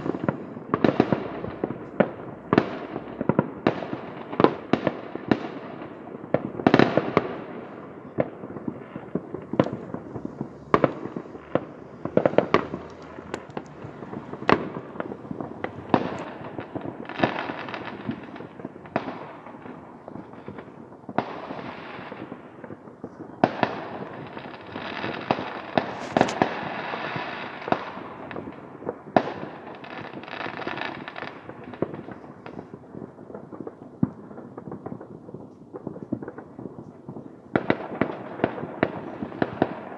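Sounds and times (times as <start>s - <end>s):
fireworks bangs: 0.0s - 39.9s
rapid crackling pops: 6.4s - 19.6s, 24.3s - 26.8s.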